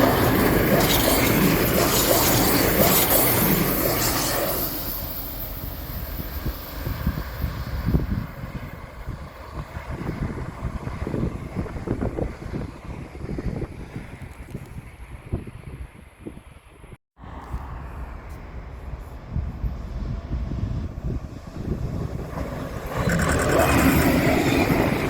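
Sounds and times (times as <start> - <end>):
train passing: 0.0 - 14.1, 17.2 - 25.0
wind buffeting microphone: 5.5 - 25.0.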